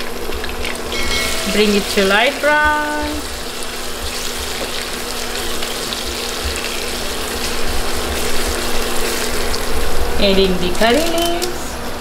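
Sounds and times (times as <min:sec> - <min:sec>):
onions sizzling in hot oil: 0:00.0 - 0:11.3
low hum: 0:00.7 - 0:04.3.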